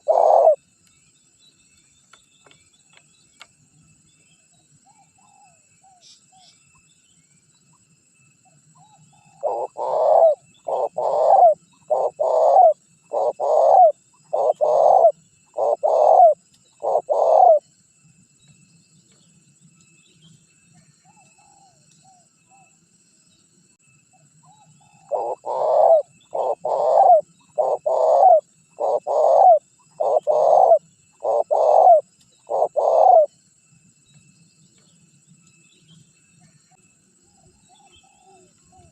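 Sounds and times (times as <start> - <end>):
dove cooing: 0.0 - 0.6, 8.8 - 17.6, 24.5 - 33.3, 37.7 - 38.9.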